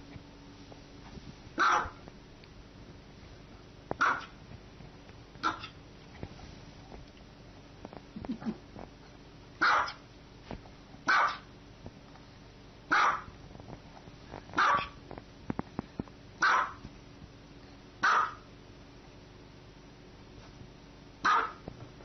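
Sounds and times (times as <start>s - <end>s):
small dog barking: 1.6s - 2.0s, 4.0s - 4.4s, 5.4s - 5.8s, 9.6s - 10.0s, 11.0s - 11.5s, 12.9s - 13.3s, 14.5s - 15.0s, 16.4s - 16.8s, 18.0s - 18.5s, 21.2s - 21.6s.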